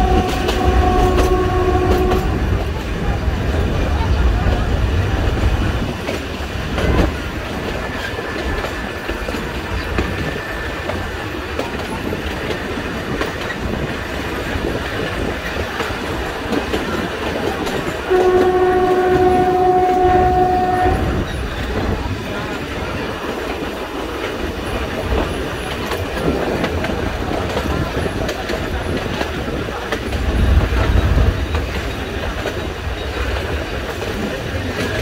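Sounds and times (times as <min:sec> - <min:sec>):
locomotive horn blast: 0:00.0 - 0:02.6, 0:18.0 - 0:21.3
train rumble: 0:00.0 - 0:35.0
train wheels clattering on rail joints: 0:00.0 - 0:35.0.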